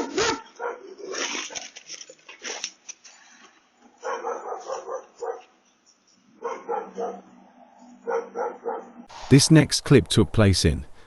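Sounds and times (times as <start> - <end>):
dog barking and yelping: 0.1 - 1.7, 4.0 - 5.6, 6.4 - 9.0.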